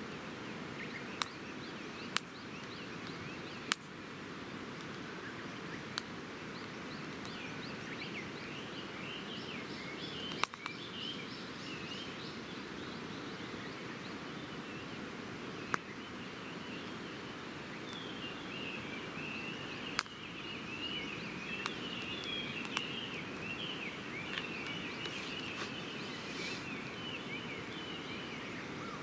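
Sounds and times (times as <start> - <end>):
campfire crackling and popping: 2.0 - 8.6, 10.2 - 10.8, 15.6 - 28.4
birds chirping: 15.6 - 29.0.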